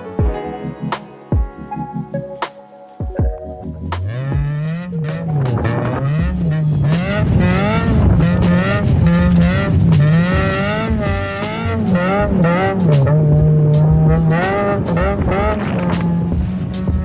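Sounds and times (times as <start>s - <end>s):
car engine revving: 3.6s - 17.0s.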